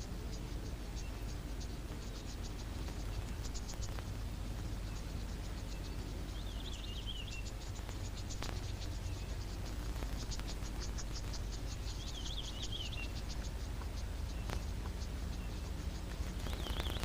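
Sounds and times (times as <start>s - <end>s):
high twittering call: 0.0s - 17.0s
insects chirping: 0.0s - 17.0s
low steady hum: 0.0s - 17.0s.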